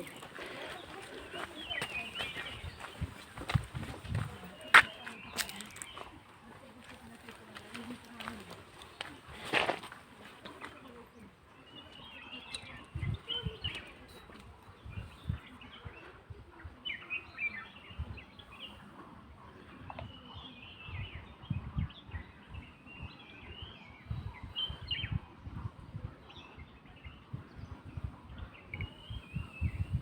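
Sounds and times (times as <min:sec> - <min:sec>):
birds chirping and calling: 0:00.0 - 0:06.0.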